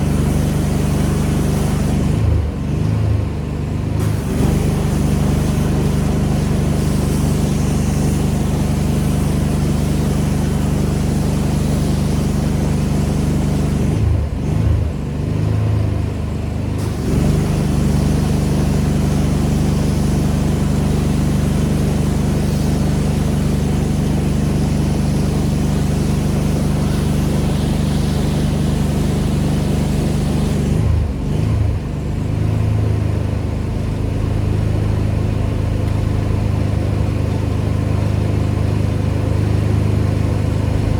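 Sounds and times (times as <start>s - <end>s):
high-pressure spray hiss: 0.0s - 2.2s, 4.0s - 14.0s, 16.8s - 30.9s
pressure washer engine hum: 0.0s - 40.9s.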